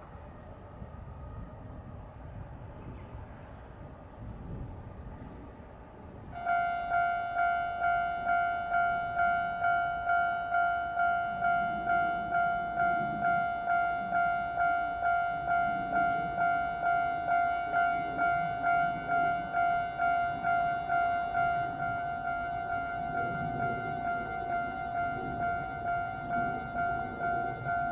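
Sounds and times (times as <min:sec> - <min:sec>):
crossing warning bell dinging: 0:06.4 - 0:27.9.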